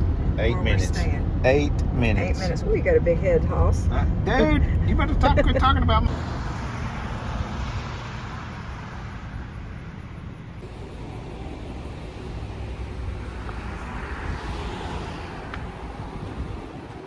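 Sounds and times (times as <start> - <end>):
car engine rumble: 0.0 - 17.0.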